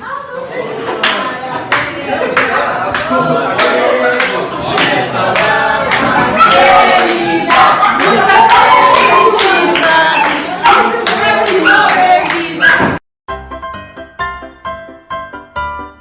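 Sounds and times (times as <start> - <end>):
people singing together: 0.4 - 13.0
hand claps: 1.0 - 8.6, 11.0 - 12.5.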